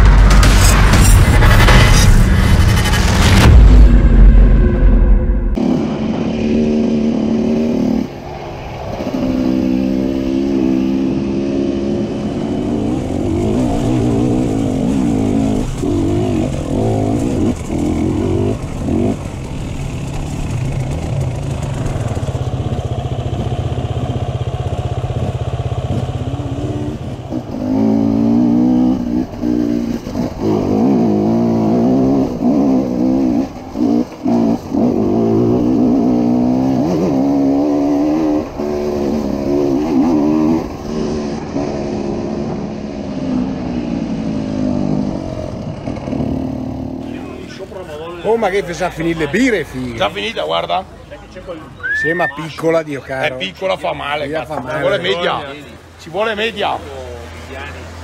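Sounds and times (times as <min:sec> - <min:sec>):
dirt bike engine revving: 0:05.5 - 0:08.2, 0:09.0 - 0:47.3.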